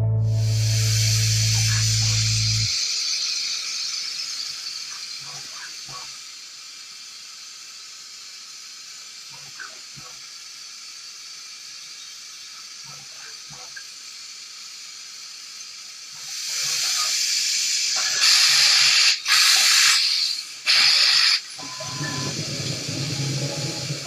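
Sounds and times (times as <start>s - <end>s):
machine spray-like hiss: 0.3s - 24.0s.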